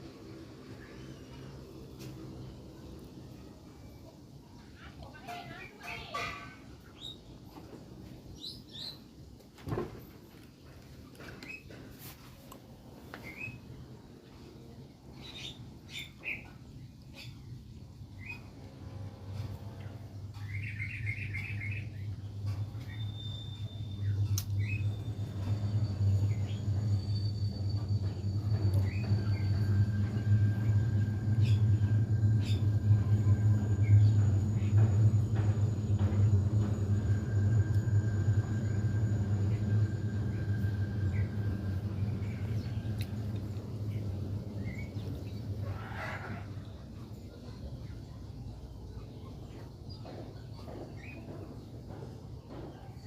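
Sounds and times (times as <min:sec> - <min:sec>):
steady low hum: 0:00.0 - 0:53.0
faint bird chirps: 0:20.4 - 0:43.3.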